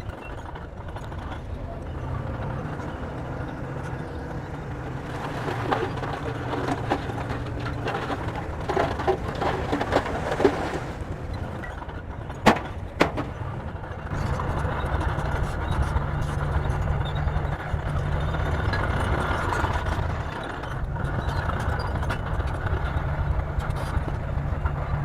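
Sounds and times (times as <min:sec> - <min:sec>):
metallic clanks and rattles: 0:00.0 - 0:23.0
bulldozer diesel engine running: 0:00.0 - 0:25.0
sharp knocks: 0:12.4 - 0:13.4.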